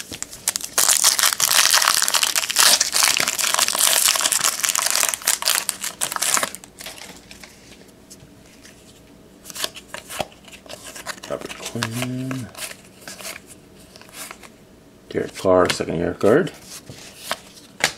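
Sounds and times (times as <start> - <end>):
wrapper crinkling and tearing: 0.0 - 7.2.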